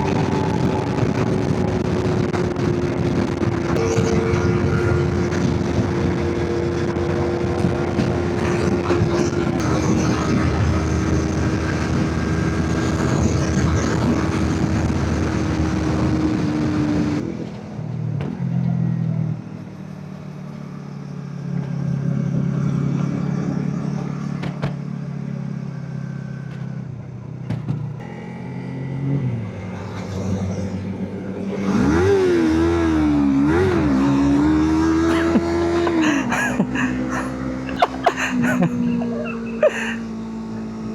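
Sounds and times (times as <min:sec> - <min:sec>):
motorcycle engine: 0:00.0 - 0:40.9.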